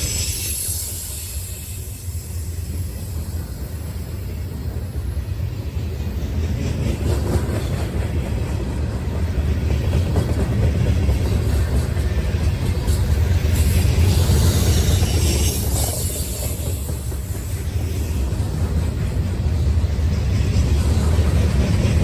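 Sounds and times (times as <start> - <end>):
freight train rumbling on rails: 0.0 - 22.0.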